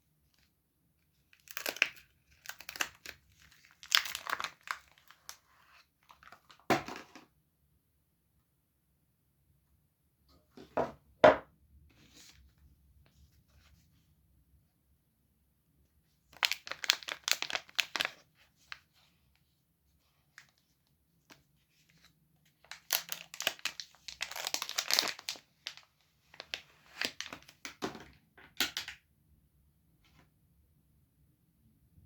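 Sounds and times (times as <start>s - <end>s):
wrapper crinkling and tearing: 1.3s - 5.4s, 16.4s - 18.2s, 22.6s - 27.7s.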